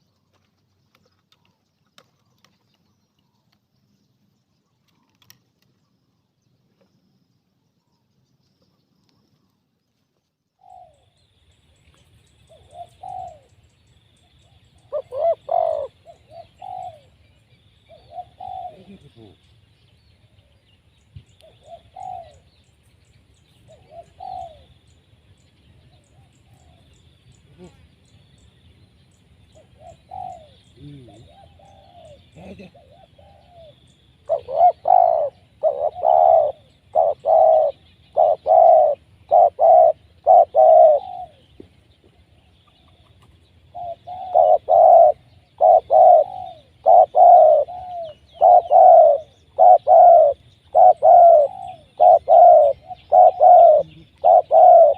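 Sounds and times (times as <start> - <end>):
dove cooing: 10.6 - 11.1, 12.5 - 13.6, 14.4 - 17.2, 17.9 - 19.4, 21.4 - 22.5, 23.7 - 24.8, 29.5 - 41.7, 42.6 - 54.9.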